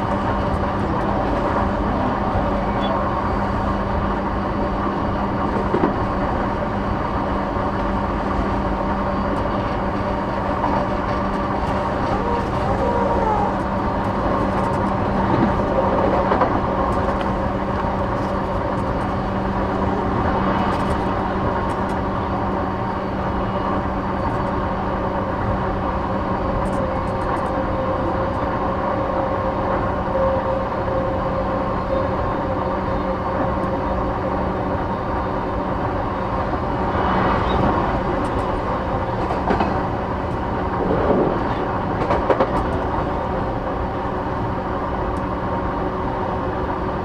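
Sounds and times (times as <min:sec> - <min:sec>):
train wheels rumbling on track: 0:00.0 - 0:47.0
constant tonal hum: 0:08.1 - 0:24.6.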